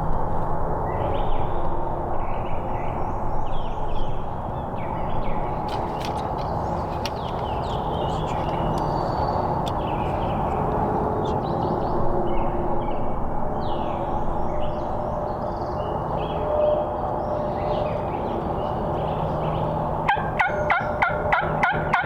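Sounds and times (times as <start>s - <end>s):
low outdoor background noise: 0.0s - 22.0s
songbirds chirping and trilling: 2.7s - 22.0s
sharp ticking bird notes: 5.6s - 12.0s.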